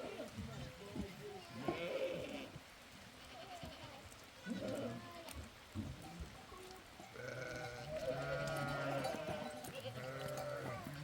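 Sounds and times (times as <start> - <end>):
sheep and goats bleating: 1.4 - 2.6, 3.2 - 5.5, 7.0 - 11.0.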